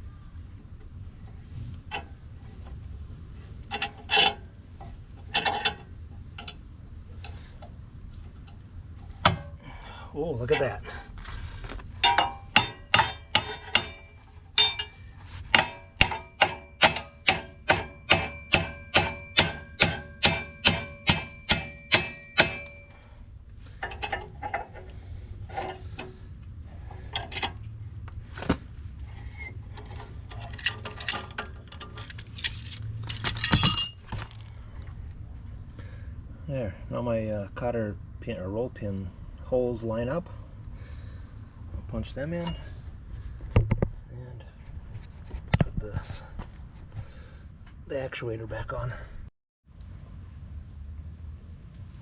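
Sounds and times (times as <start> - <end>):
metal clatter: 3.6 - 6.6, 11.9 - 26.2, 29.2 - 34.5
light metal taps and clinks: 12.0 - 23.1, 29.8 - 34.3
hammer striking metal: 15.6 - 23.0.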